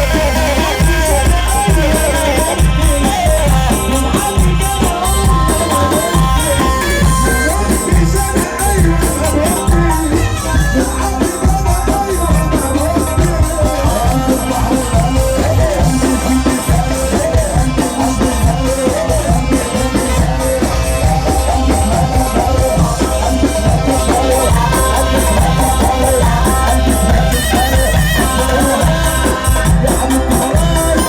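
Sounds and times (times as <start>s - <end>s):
loud fast dance music: 0.0s - 31.0s.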